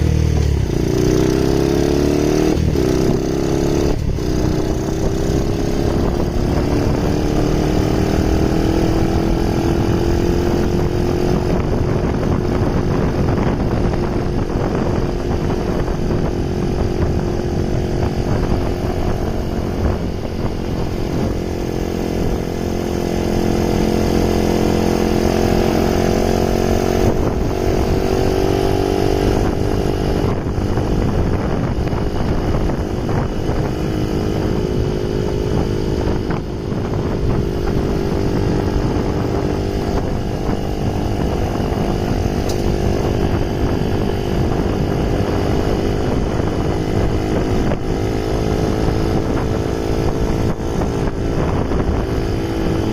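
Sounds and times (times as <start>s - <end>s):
scooter engine running: 0.0s - 52.9s.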